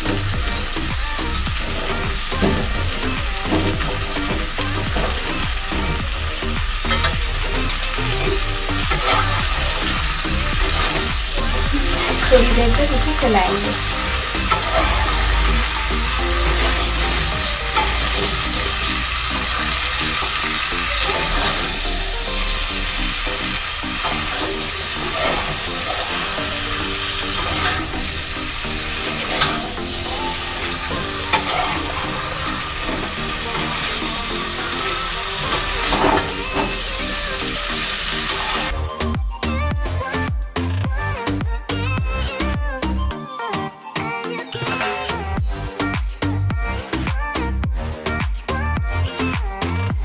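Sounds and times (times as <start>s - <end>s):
food sizzling in oil: 0.0s - 38.7s
spatula scraping a pan: 6.8s - 38.7s.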